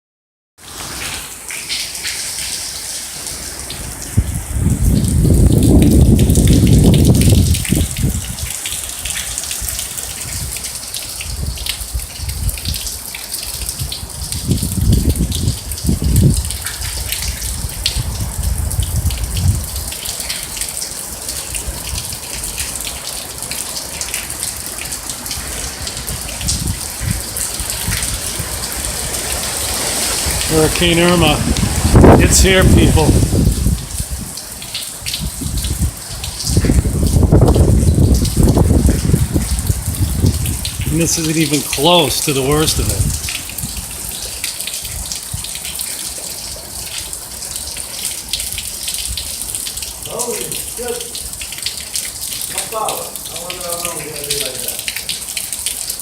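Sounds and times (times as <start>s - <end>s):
wind and rain rushing hiss: 0.6s - 56.0s
wind gusts buffeting microphone: 3.6s - 20.6s, 21.3s - 22.8s, 24.0s - 45.6s.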